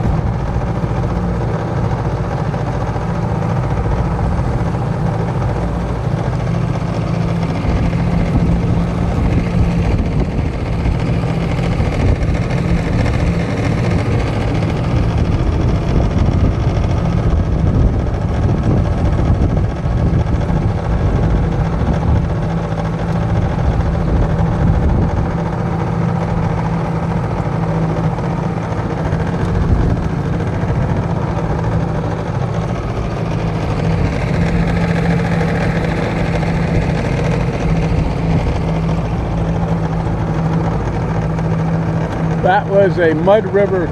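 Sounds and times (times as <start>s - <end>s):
two-stroke outboard motor running: 0.0s - 43.9s.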